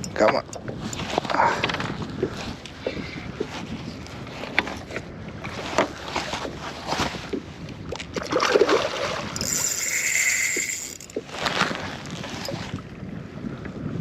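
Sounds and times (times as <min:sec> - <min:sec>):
knocks and clicks on hull: 0:00.0 - 0:02.6
wind on microphone: 0:00.0 - 0:14.0
water sloshing and splashing: 0:00.4 - 0:12.9.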